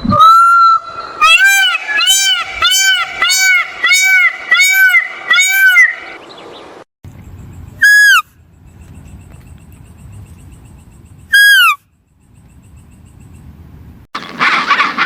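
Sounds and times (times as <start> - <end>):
bird honking calls: 0.2 - 6.2.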